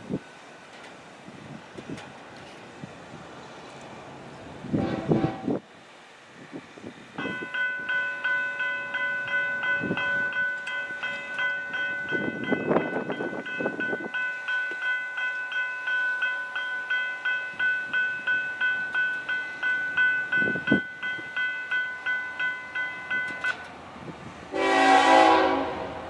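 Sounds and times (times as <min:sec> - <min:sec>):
crossing bell dinging: 0:07.2 - 0:23.7.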